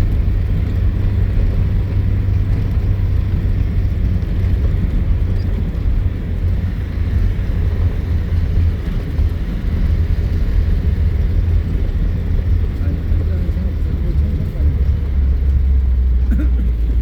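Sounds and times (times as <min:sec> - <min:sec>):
vehicle driving off-road: 0:00.0 - 0:17.0.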